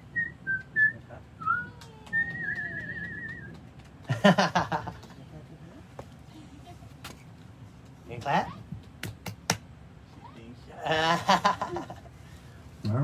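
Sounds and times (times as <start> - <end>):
person whistling: 0.2 - 3.5.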